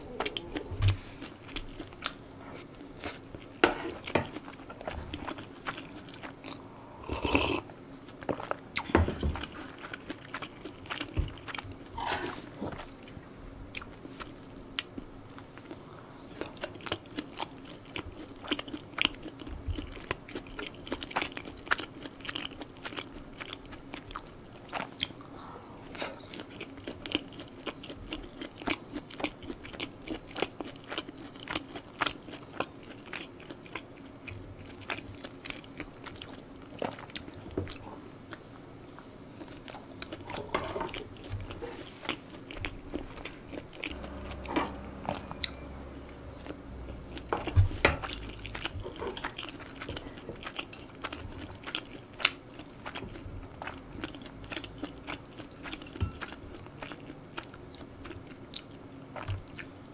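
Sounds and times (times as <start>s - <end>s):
person chewing with mouth smacks: 0.0s - 45.6s, 46.5s - 59.8s.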